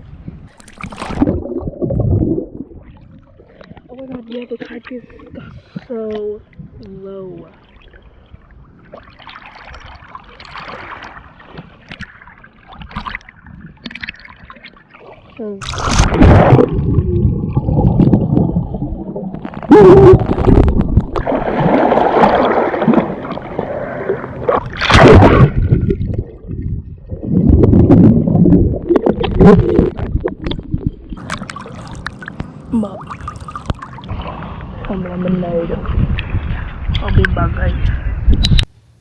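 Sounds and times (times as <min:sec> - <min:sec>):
sea waves splashing: 0:09.0 - 0:12.8, 0:14.9 - 0:26.1, 0:31.1 - 0:37.6.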